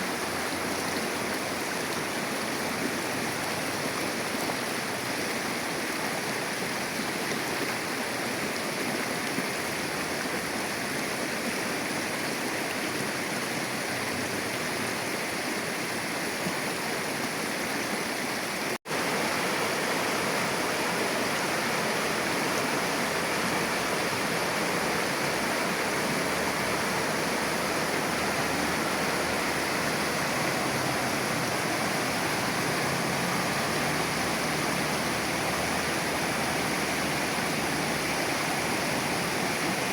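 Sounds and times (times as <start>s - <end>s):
shallow river flowing: 0.0s - 39.9s.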